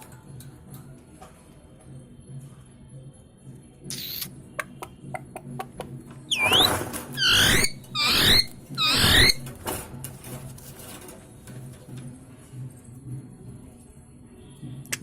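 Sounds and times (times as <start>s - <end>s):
parrot squawking: 6.3s - 9.5s.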